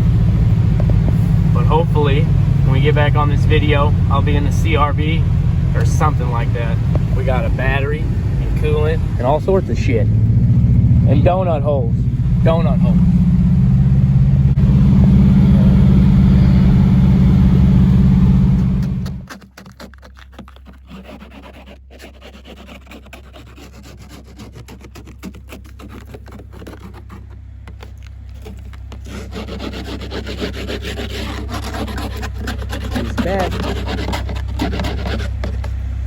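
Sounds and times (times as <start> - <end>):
car road and engine drone: 0.0 - 36.0
rapid clicking and rubbing: 18.6 - 35.8.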